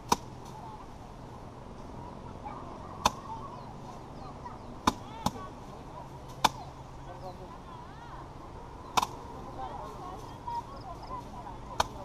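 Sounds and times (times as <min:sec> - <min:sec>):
rice bundles thwacked by hand: 0:00.0 - 0:00.6, 0:06.2 - 0:06.7, 0:08.9 - 0:09.2, 0:11.7 - 0:12.0.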